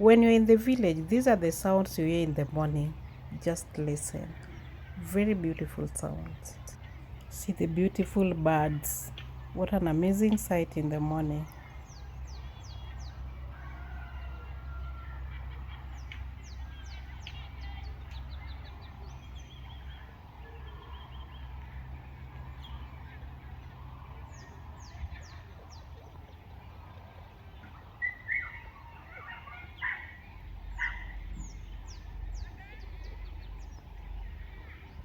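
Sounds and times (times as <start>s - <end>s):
steady low rumble: 0.0s - 13.6s
small birds chirping: 0.0s - 35.0s
louder lower bird calls: 24.3s - 35.0s.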